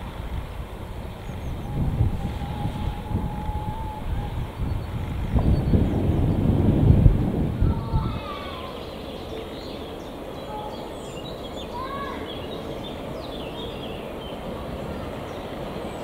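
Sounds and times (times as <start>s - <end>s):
songbirds chirping and singing: 7.9s - 16.0s.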